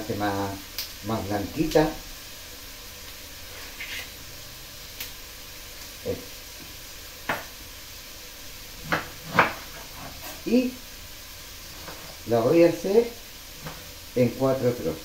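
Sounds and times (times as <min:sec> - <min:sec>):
vegetables sizzling in a pot: 0:00.0 - 0:15.0.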